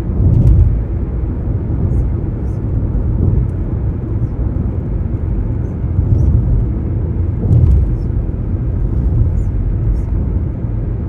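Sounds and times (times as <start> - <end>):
low outdoor rumble: 0.0 - 11.0
brief clatter: 7.4 - 8.2.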